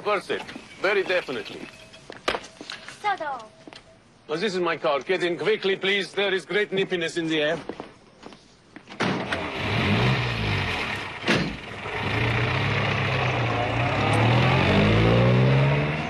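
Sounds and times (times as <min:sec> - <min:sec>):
car engine accelerating: 0:09.3 - 0:16.0.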